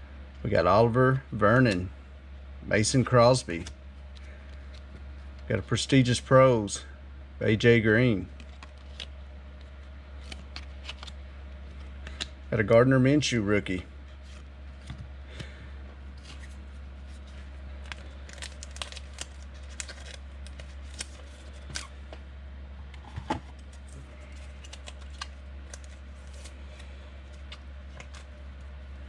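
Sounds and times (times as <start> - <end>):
steady low hum: 0.0 - 29.0
foil wrappers crinkling and tearing: 8.4 - 11.2, 16.2 - 22.0, 23.6 - 28.4.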